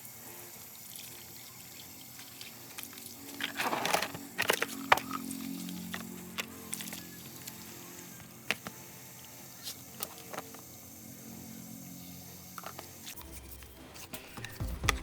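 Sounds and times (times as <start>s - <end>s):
faint background music: 0.0s - 15.0s
small parts clicking and tapping: 1.7s - 10.9s, 12.4s - 13.2s.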